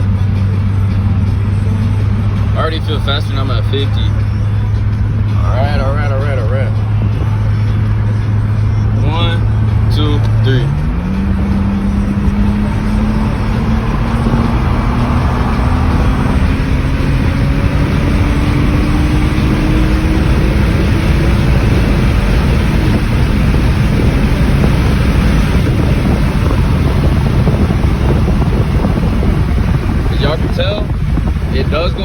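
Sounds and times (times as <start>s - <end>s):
car engine accelerating hard: 0.0s - 32.0s
wind and road noise: 0.0s - 32.0s.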